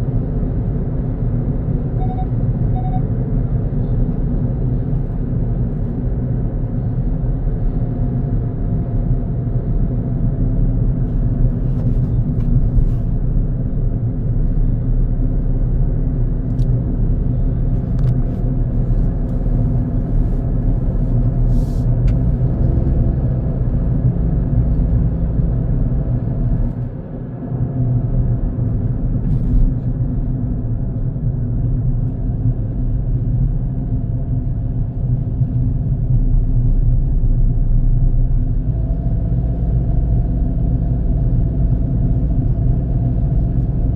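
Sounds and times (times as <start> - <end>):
car driving on a road: 0.0 - 43.9.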